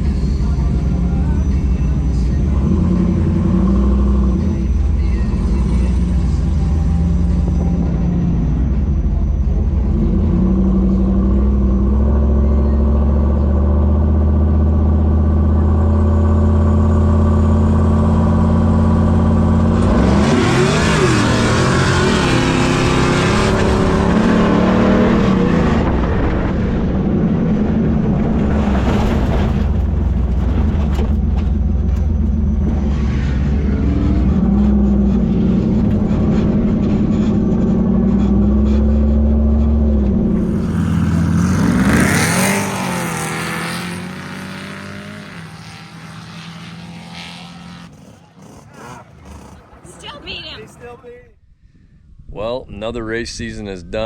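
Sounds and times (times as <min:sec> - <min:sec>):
race engine rumbling and revving: 0:00.0 - 0:51.2.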